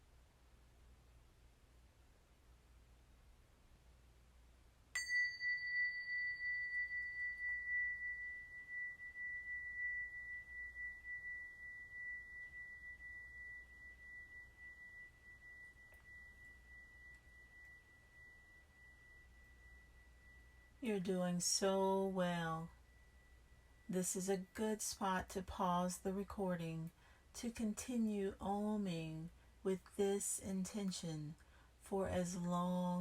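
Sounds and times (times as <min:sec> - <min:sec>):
small metal chime ringing: 0:05.0 - 0:20.9.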